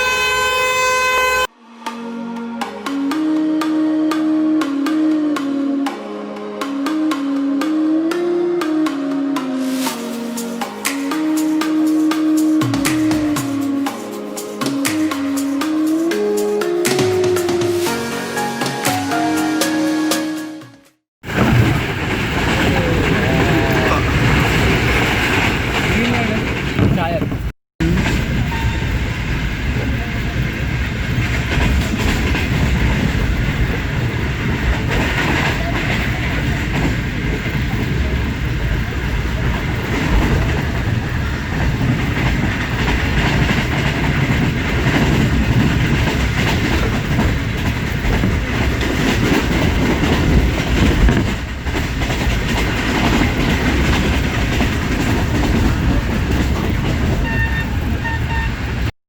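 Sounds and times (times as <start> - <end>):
train wheels rumbling on rails: 21.2 - 58.9.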